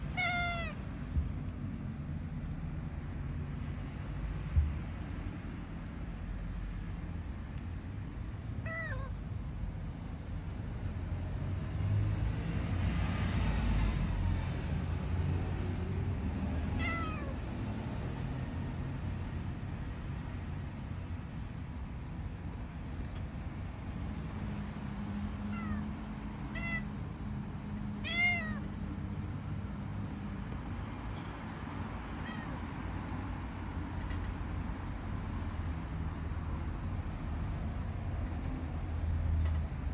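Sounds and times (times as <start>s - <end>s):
cat meowing: 0.0s - 0.8s, 8.6s - 9.2s, 16.8s - 17.4s, 25.5s - 25.9s, 26.5s - 26.9s, 28.0s - 28.7s, 32.2s - 32.6s.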